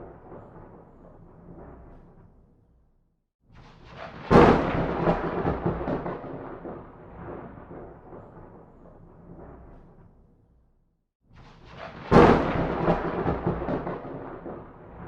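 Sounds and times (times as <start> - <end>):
thunderclap with rolling rumble: 0.0 - 2.3, 3.9 - 10.3, 11.7 - 15.0.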